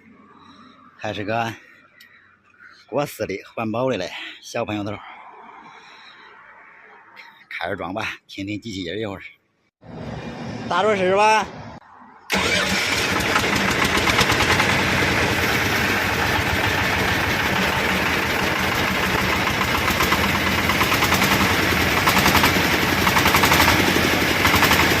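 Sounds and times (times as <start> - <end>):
diesel engine clattering: 12.3 - 25.0.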